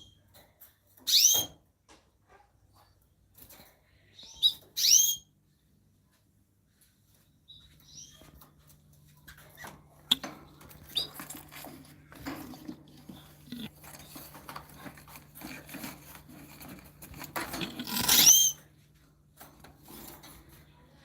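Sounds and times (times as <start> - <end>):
small birds chirping: 3.9 - 5.7, 7.0 - 15.3
rustling: 8.4 - 20.7.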